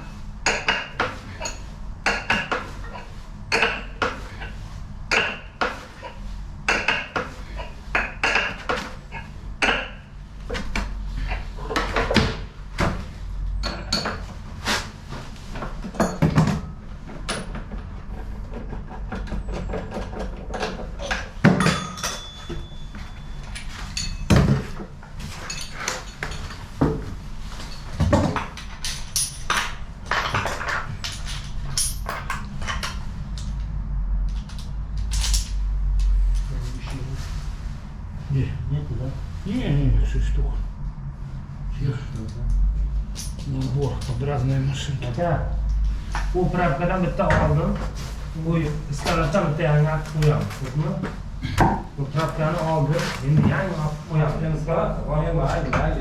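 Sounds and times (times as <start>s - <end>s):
steady low hum: 0.0s - 56.0s
metal tools clinking and knocking: 19.3s - 26.7s, 27.6s - 33.0s, 34.5s - 35.6s, 43.1s - 44.8s.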